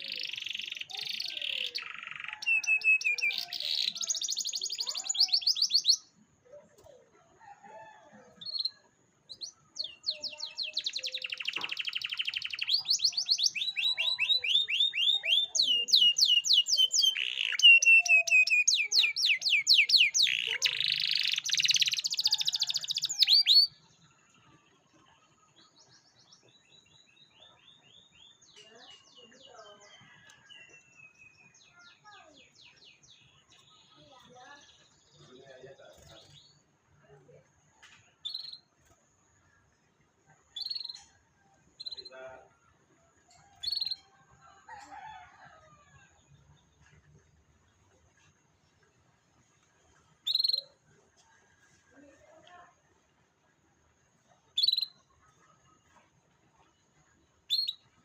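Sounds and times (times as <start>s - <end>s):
canary singing trills: 0.0s - 6.9s, 7.8s - 23.8s, 38.1s - 39.0s, 40.4s - 42.5s, 43.2s - 45.2s, 49.4s - 52.4s, 53.8s - 58.0s.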